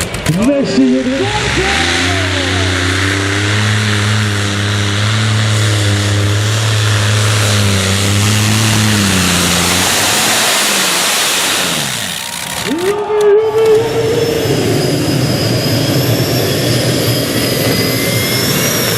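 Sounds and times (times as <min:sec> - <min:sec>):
tractor engine running flat out: 0:00.0 - 0:18.9
falling whine: 0:00.1 - 0:18.9.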